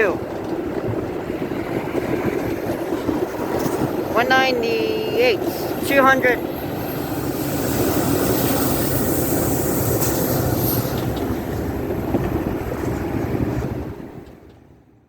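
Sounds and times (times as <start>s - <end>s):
train passing rumble: 0.0s - 15.0s.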